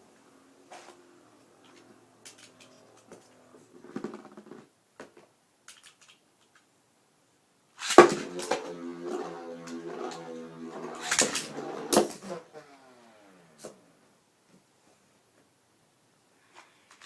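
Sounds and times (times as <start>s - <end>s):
spinning tops humming: 0.4s - 3.9s, 7.9s - 14.0s
spinning tops clattering: 1.6s - 4.2s, 7.8s - 12.3s
spinning tops knocking: 7.8s - 12.4s.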